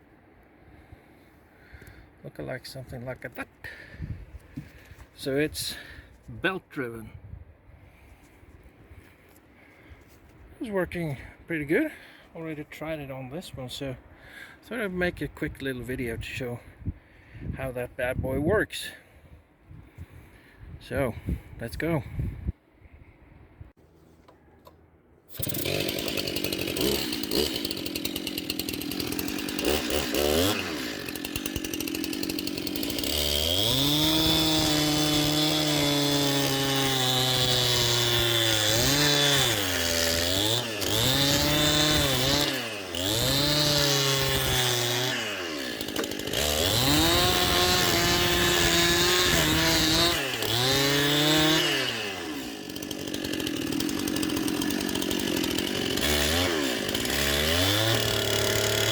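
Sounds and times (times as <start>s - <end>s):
chainsaw engine under load: 1.8s - 7.0s, 24.1s - 58.9s.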